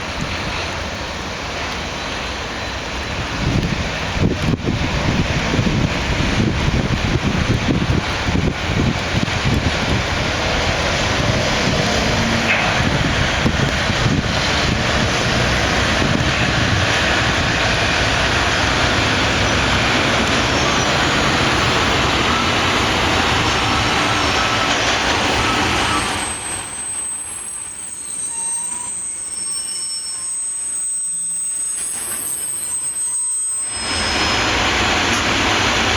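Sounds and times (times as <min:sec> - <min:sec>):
train wheels rumbling on rails: 0:00.0 - 0:35.9
high wheel squeals: 0:10.3 - 0:35.7.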